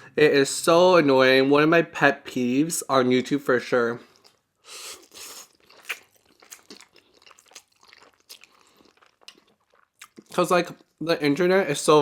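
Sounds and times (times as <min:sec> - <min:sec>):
wet mouth clicks: 0:04.2 - 0:10.9.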